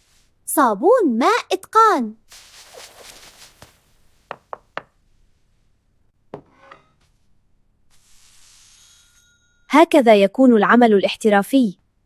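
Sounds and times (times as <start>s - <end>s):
faint hiss: 2.2s - 4.5s.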